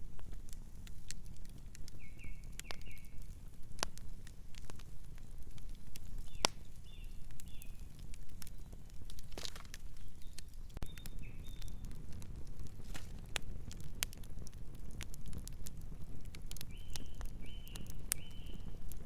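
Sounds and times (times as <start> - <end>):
wood fire crackling and popping: 0.0 - 19.0
bird chirps: 6.3 - 7.8, 10.0 - 11.8, 16.7 - 18.7.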